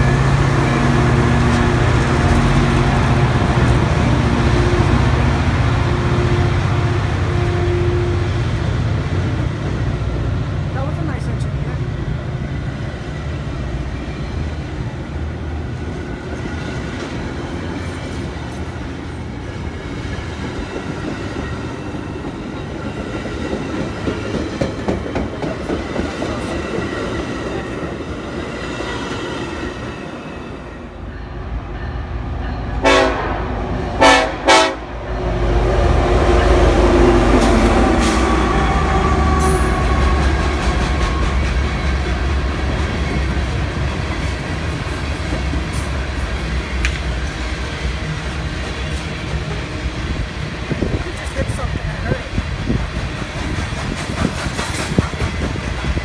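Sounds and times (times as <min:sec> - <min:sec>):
deep rumble of freight train: 0:00.0 - 0:56.0
train wheels clicking over rail joints: 0:19.7 - 0:28.2, 0:52.3 - 0:56.0
locomotive horn blasts: 0:32.8 - 0:35.0.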